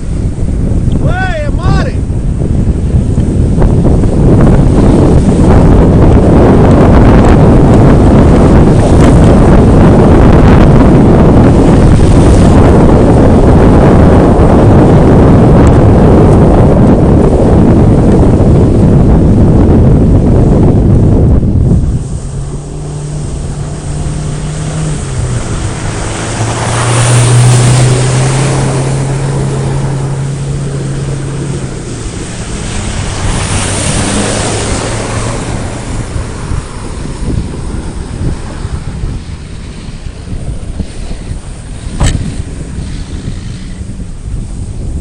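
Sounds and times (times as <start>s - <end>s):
loud rushing noise: 0.0s - 44.8s
vehicle engine running: 3.0s - 38.3s.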